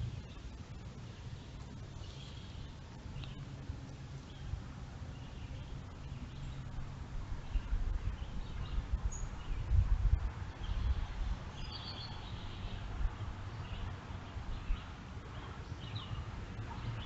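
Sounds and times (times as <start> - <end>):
faint bird chirps: 0.0 - 3.5, 10.6 - 12.9.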